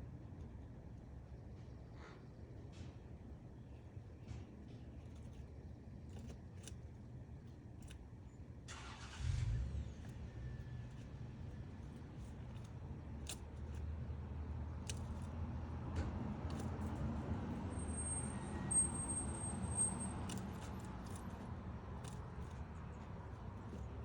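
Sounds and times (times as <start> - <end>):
road vehicle rumbling past: 8.8 - 11.6.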